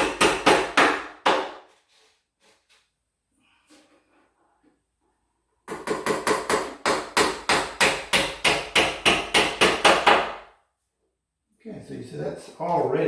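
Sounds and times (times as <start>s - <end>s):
hammer tapping nails into wood: 5.7s - 10.4s.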